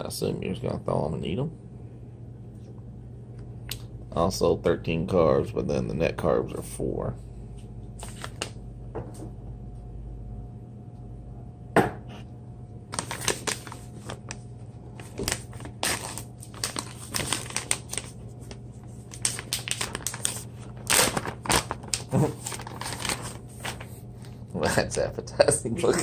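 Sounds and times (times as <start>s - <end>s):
plastic packaging crinkling and tearing: 8.0s - 8.6s, 12.9s - 24.3s.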